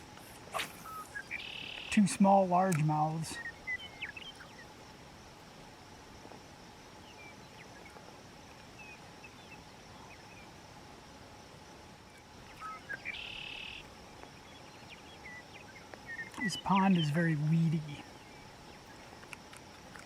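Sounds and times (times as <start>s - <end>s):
insect hum: 0.0s - 20.0s
bird chirps: 0.3s - 2.0s, 3.3s - 4.7s, 12.5s - 19.0s.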